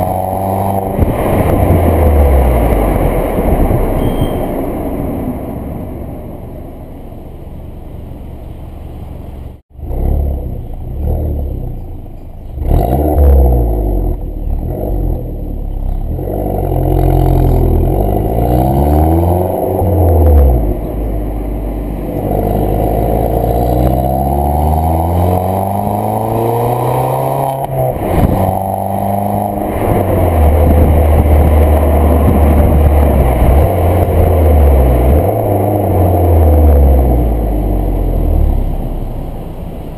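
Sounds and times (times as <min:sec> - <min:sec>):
car exhaust revving: 0:00.0 - 0:08.3, 0:09.7 - 0:39.9.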